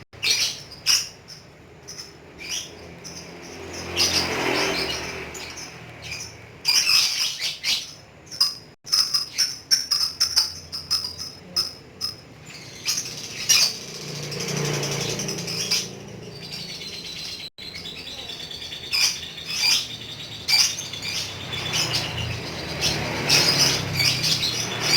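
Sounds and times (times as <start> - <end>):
lovebird chattering: 0.2 - 24.9.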